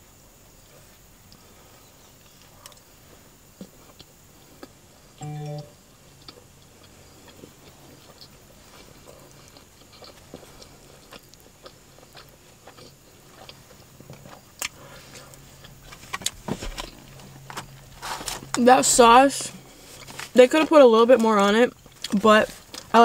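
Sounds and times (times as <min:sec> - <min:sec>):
person chewing food: 0:02.2 - 0:02.9, 0:03.5 - 0:04.8, 0:06.2 - 0:17.8, 0:21.7 - 0:22.9.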